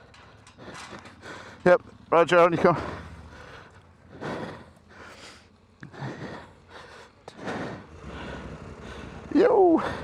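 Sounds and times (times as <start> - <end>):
person breathing hard: 0.0 - 1.7, 2.6 - 10.0.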